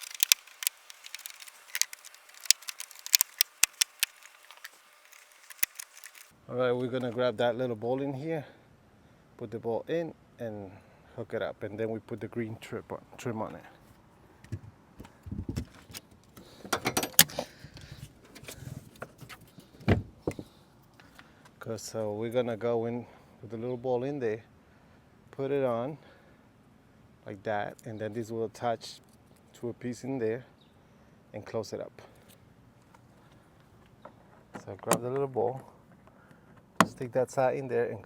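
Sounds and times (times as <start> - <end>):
plastic trim clicking and snapping: 0.0 - 6.3.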